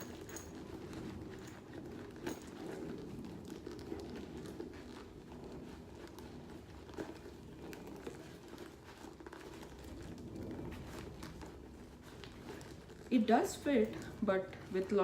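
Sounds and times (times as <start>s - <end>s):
leather rustling: 0.0s - 15.0s.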